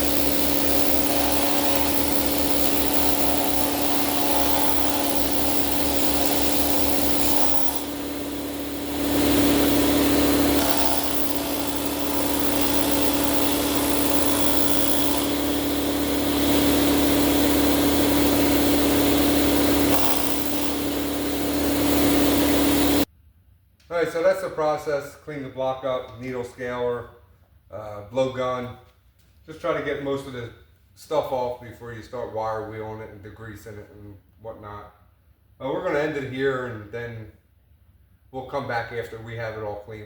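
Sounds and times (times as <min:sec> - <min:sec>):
air tool buzzing: 0:00.0 - 0:23.1.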